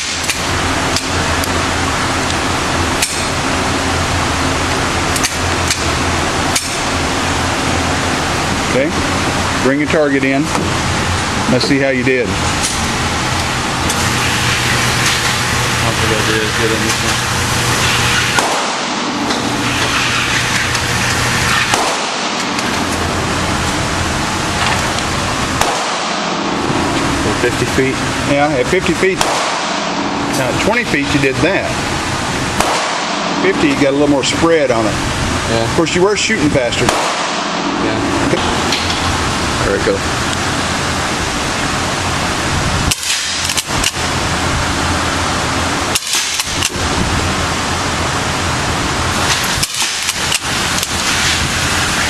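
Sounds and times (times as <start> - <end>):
steady low hum: 0.0 - 52.0
gunshots: 18.3 - 19.2, 21.6 - 22.6, 25.6 - 26.4, 29.0 - 30.0, 32.6 - 33.5, 36.8 - 37.7, 45.9 - 46.7, 49.3 - 50.4.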